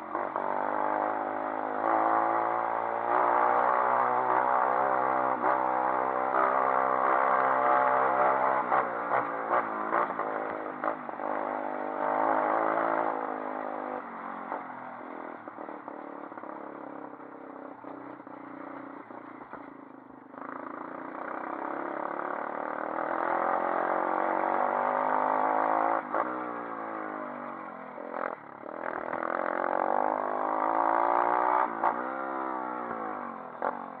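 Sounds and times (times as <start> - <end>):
motorbike engine revving: 0.1 - 14.6, 28.1 - 34.0.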